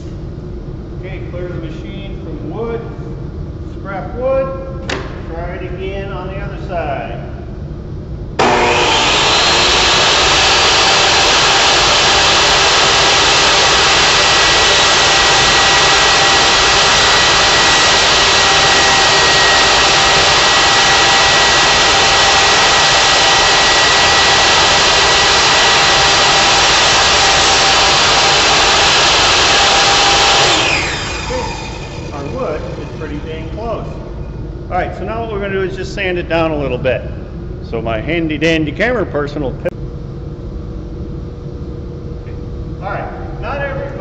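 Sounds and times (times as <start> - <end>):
electric saw whirring: 8.4 - 33.3.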